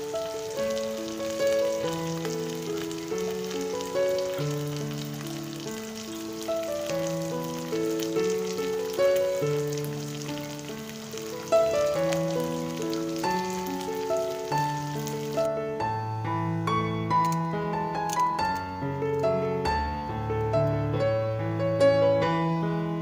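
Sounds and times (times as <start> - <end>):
curry sizzling in oil: 0.0 - 15.5
instrumental music with held notes: 0.0 - 23.0.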